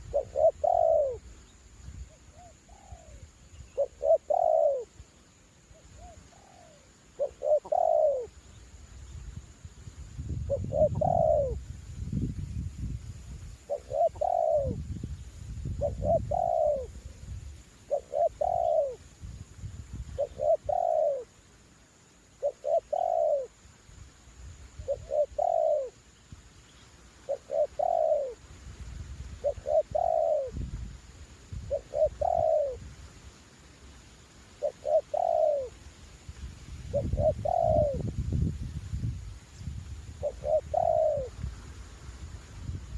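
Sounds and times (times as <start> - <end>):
dove cooing: 0.0 - 1.3, 2.3 - 5.0, 5.7 - 8.4, 10.5 - 11.6, 13.7 - 14.8, 15.8 - 17.3, 17.9 - 19.0, 20.2 - 21.3, 22.4 - 23.6, 24.8 - 26.0, 27.2 - 28.4, 29.4 - 30.6, 31.6 - 32.9, 34.6 - 35.8, 36.9 - 38.1, 40.2 - 41.4
wind buffeting microphone: 9.1 - 17.6, 28.7 - 33.0, 36.4 - 42.9.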